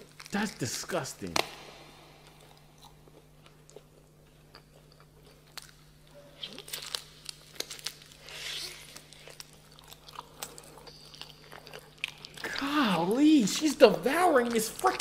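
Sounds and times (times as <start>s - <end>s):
person chewing meat crunchily: 1.6s - 13.0s.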